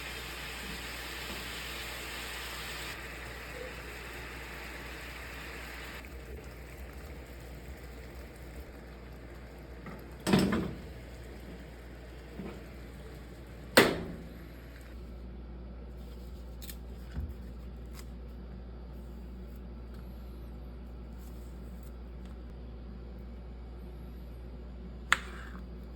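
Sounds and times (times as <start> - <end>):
steady low hum: 2.9 - 25.9
loud kitchen knocks: 13.8 - 14.3.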